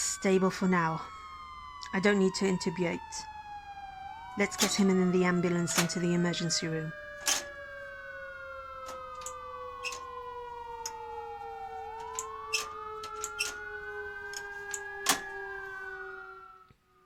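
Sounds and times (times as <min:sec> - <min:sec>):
ambulance siren wailing: 0:00.0 - 0:17.0
sharp clicks and knocks: 0:05.6 - 0:06.1, 0:07.1 - 0:07.6, 0:08.8 - 0:10.2, 0:11.8 - 0:15.4.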